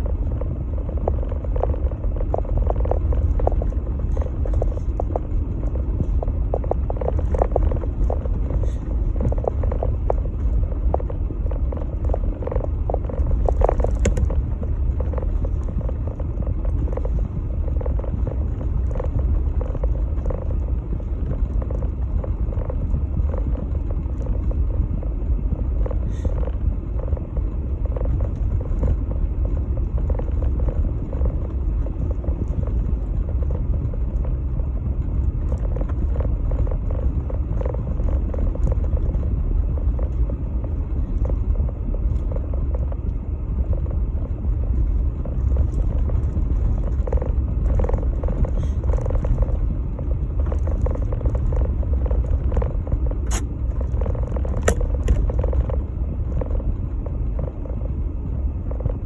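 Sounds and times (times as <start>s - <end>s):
engine and road rumble: 0.0s - 59.0s.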